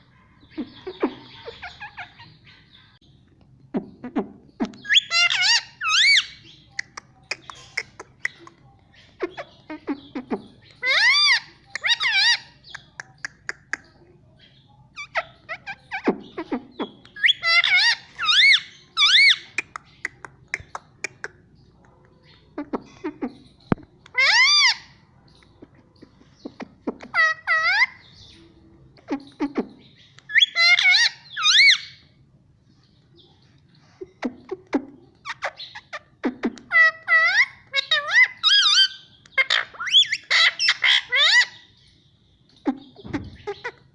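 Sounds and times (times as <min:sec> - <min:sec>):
parrot squawking: 0:00.6 - 0:02.7, 0:04.0 - 0:08.4, 0:09.2 - 0:13.8, 0:15.0 - 0:21.3, 0:24.1 - 0:25.0, 0:26.4 - 0:28.1, 0:29.0 - 0:32.0, 0:34.0 - 0:41.7.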